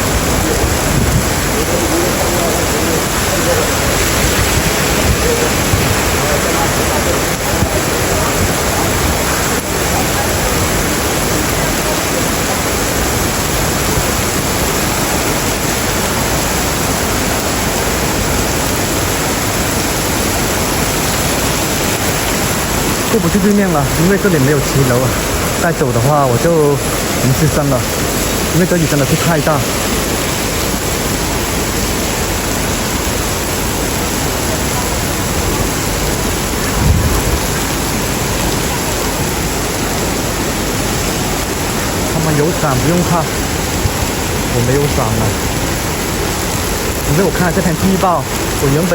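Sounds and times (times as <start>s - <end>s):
torrential rain pouring: 0.0s - 48.9s
low rumble: 36.4s - 39.3s.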